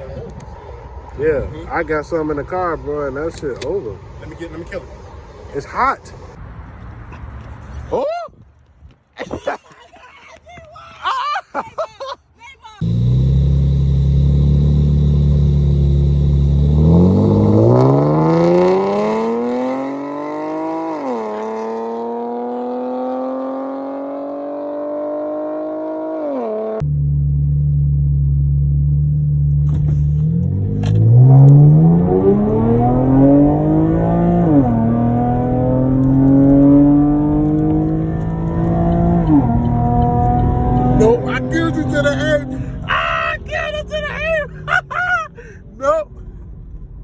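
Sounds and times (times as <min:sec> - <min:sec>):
car engine accelerating hard: 0:12.8 - 0:42.9.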